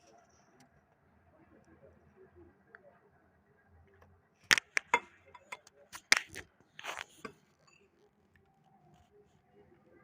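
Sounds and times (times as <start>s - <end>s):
eating clicks and taps: 4.5s - 7.0s.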